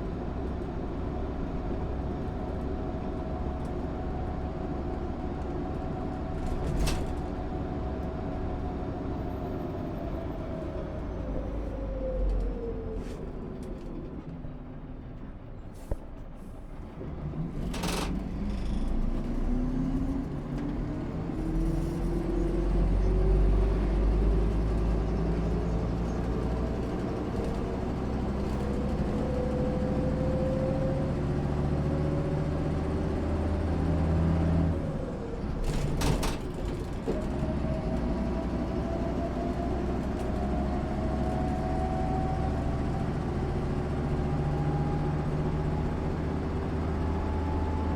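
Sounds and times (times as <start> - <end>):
bus diesel engine accelerating: 0.0 - 47.9.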